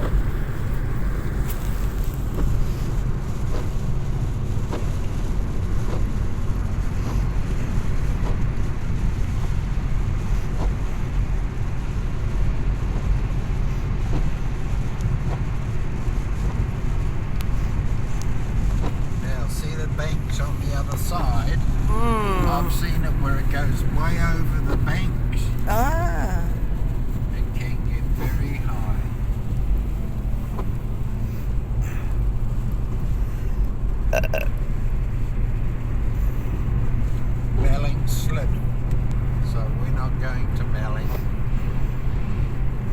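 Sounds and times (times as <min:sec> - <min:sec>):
car cabin road and engine rumble: 0:00.0 - 0:42.9
brief vocal sound: 0:21.8 - 0:22.8.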